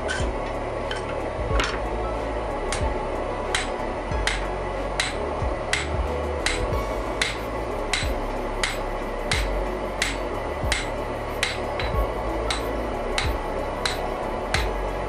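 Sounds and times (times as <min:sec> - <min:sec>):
hammer striking iron on anvil: 0:03.5 - 0:14.8.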